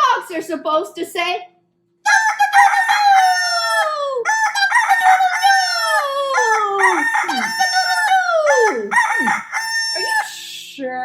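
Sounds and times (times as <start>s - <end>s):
rooster crowing: 2.1s - 10.4s.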